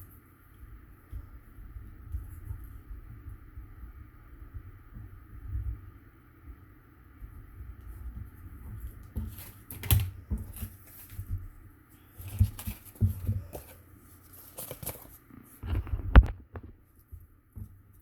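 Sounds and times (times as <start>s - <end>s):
paper and cardboard rustling: 7.8s - 18.0s.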